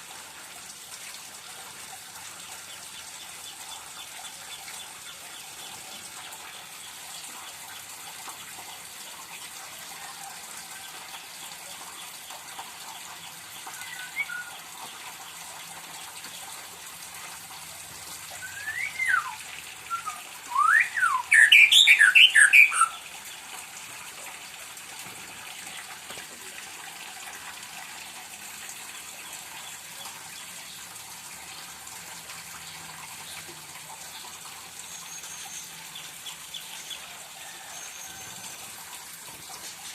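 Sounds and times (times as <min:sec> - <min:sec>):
bird chirping and whistling song: 0:13.8 - 0:14.6, 0:18.4 - 0:23.0.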